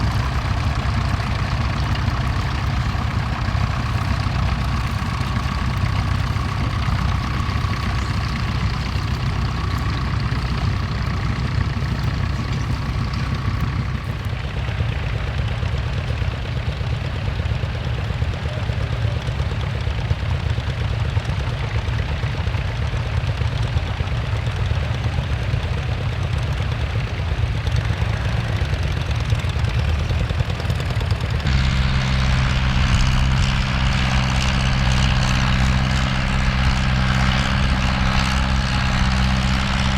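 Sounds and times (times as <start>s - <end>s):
deep droning engine: 0.0s - 17.1s, 26.8s - 39.9s
tractor engines running: 0.0s - 39.9s.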